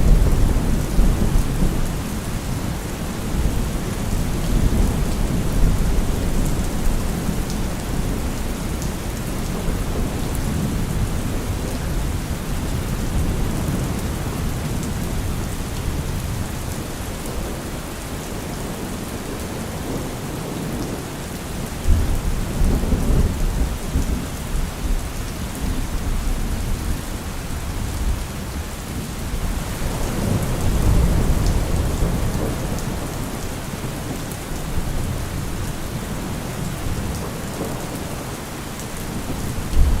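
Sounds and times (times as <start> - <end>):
steady rain: 0.0 - 40.0
thunder rumbling: 29.3 - 38.4, 39.0 - 40.0.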